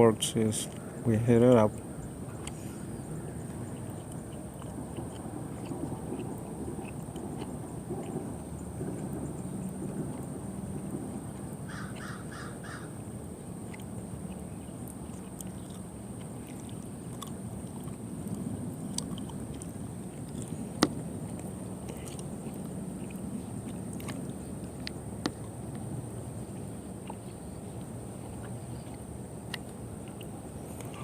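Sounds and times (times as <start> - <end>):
steady low hum: 0.0 - 31.0
bird calling: 11.7 - 13.0.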